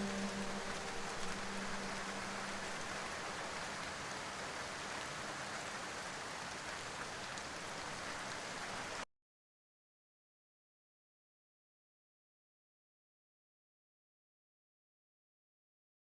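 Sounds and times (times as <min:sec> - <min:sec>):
rain falling on a surface: 0:00.0 - 0:09.1.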